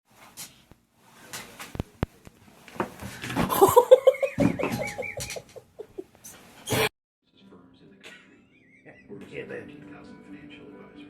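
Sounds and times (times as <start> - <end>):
person laughing: 3.5 - 6.0.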